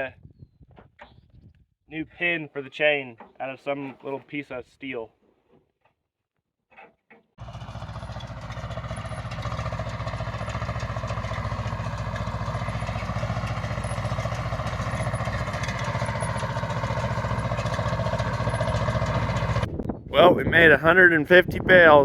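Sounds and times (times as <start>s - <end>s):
tractor engine running: 7.4s - 19.7s.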